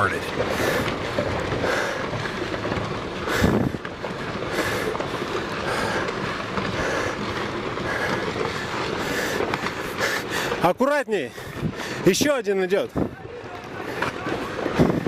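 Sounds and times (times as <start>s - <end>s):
rocks tumbling and clattering: 0.0s - 15.0s.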